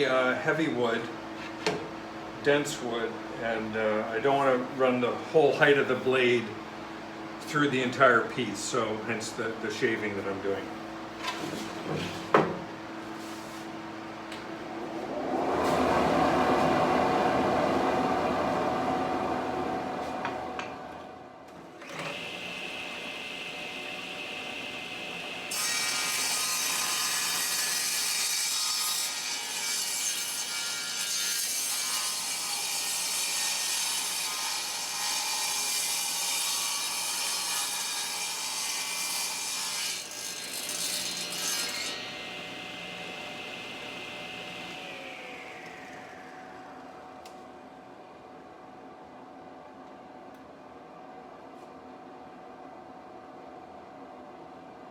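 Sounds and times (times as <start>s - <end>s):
table saw motor whine: 21.8s - 29.6s, 40.2s - 47.8s.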